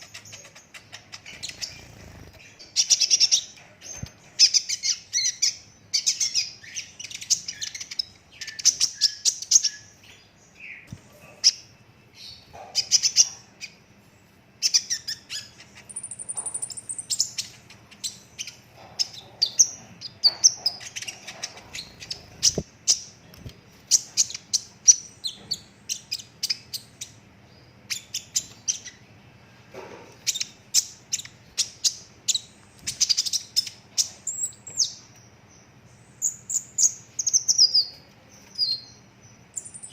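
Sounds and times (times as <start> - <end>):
sunbird singing chirps and trills: 0.0 - 29.6, 30.2 - 39.9.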